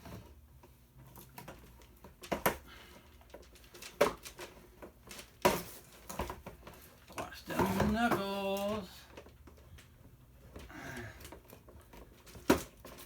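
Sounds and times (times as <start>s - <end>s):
plastic parts cracking: 1.2s - 9.9s.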